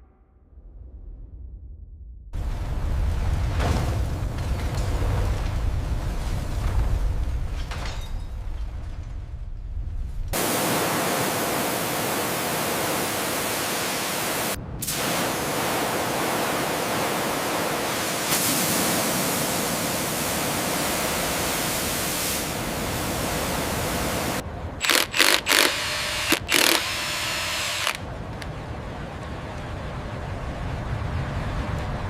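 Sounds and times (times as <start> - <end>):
loud steady hissing: 10.4 - 28.5.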